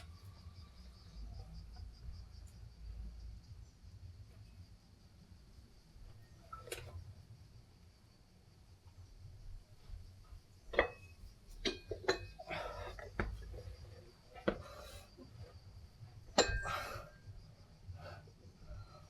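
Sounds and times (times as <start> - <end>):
metal dumbbells clinking: 10.7 - 15.1, 16.2 - 17.2.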